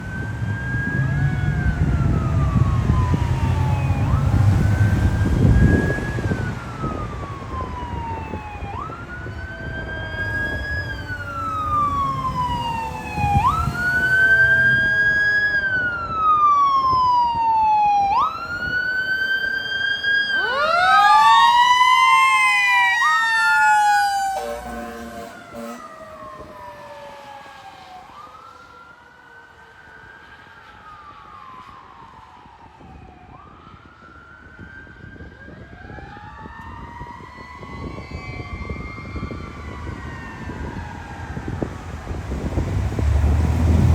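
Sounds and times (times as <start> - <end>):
engine rumble: 0.0 - 16.4, 39.6 - 43.9
fire engine siren wailing: 0.0 - 43.9
second siren rising: 0.0 - 43.9.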